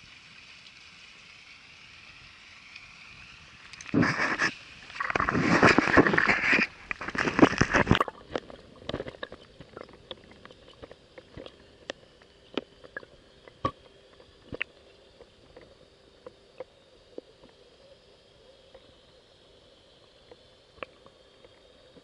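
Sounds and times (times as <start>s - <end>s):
water splashing: 3.9s - 11.6s.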